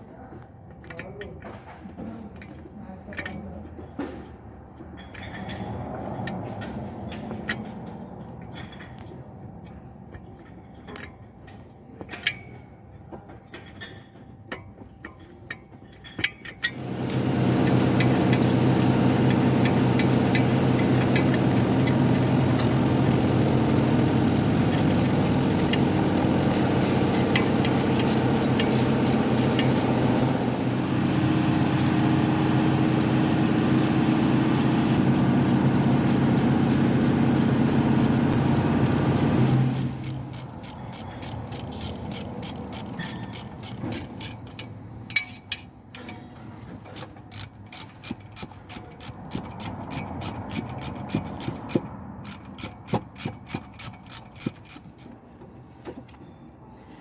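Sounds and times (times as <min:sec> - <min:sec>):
car engine starting and idling: 0:16.7 - 0:44.8, 0:47.0 - 0:55.1
metallic clinks of tools: 0:38.5 - 0:55.2.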